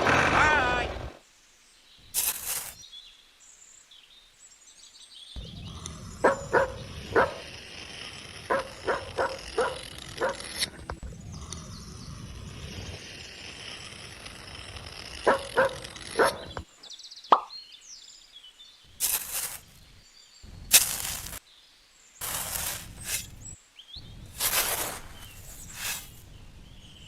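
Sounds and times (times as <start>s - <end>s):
steady low rumble: 5.4s - 9.2s, 11.0s - 13.0s
dog barking: 6.2s - 7.5s, 8.5s - 10.5s, 15.2s - 16.5s.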